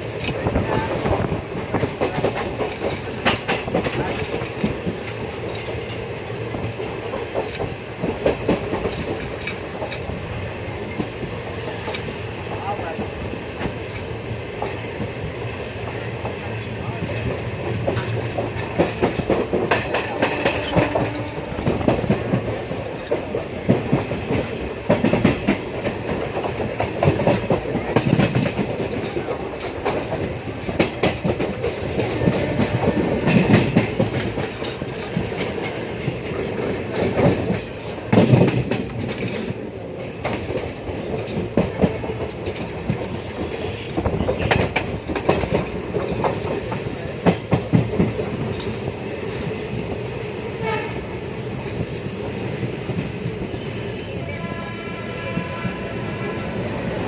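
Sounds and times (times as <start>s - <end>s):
train rumble: 0.0s - 57.0s
train wheels clacking on rails: 0.0s - 57.0s.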